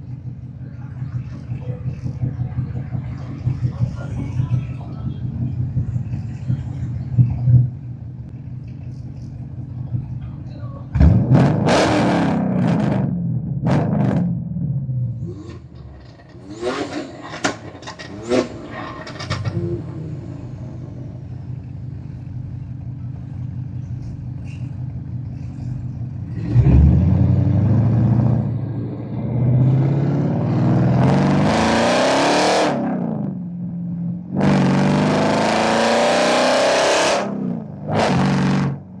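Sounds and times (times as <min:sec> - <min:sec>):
car engine revving: 0:10.9 - 0:39.0.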